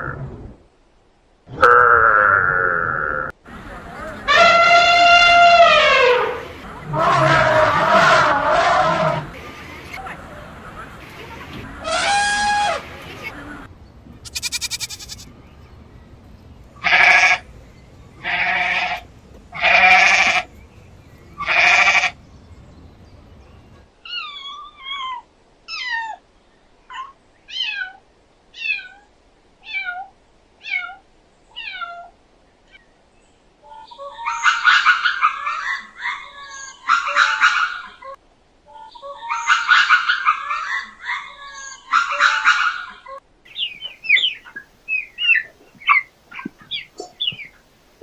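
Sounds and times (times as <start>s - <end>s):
harsh animal calls: 4.2s - 10.0s, 11.6s - 15.3s, 16.8s - 17.5s, 21.4s - 22.2s
goat bleating: 4.3s - 9.3s, 14.2s - 15.3s, 16.8s - 17.4s, 18.2s - 19.0s, 19.6s - 20.5s, 21.4s - 22.2s
short high falling calls: 14.2s - 15.3s.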